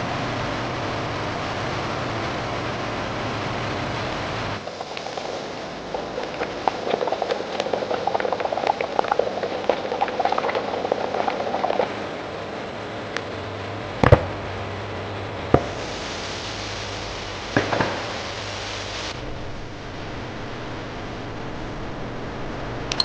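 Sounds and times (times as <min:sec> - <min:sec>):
low machinery hum: 0:00.0 - 0:23.0.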